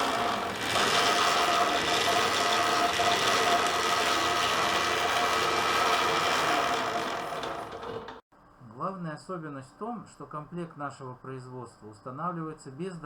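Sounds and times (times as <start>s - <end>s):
electric motor whine: 0.0s - 8.2s.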